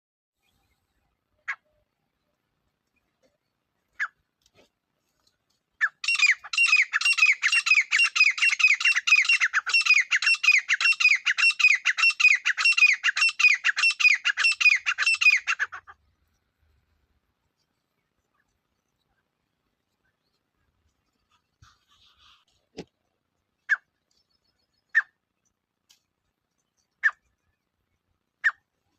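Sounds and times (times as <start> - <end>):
partridge calling: 1.4 - 1.8, 3.9 - 4.2, 5.8 - 16.0, 24.6 - 25.2, 26.8 - 27.6, 28.4 - 28.7.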